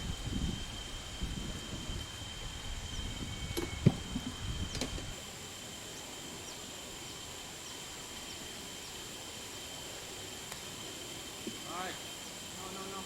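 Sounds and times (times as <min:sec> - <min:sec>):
wind buffeting microphone: 0:00.0 - 0:05.2
insects droning: 0:00.0 - 0:13.0.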